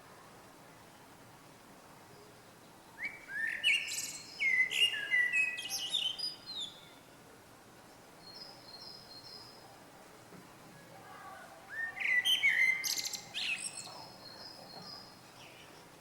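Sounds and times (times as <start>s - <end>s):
songbird singing: 2.1s - 7.2s, 7.8s - 9.8s, 11.3s - 16.0s.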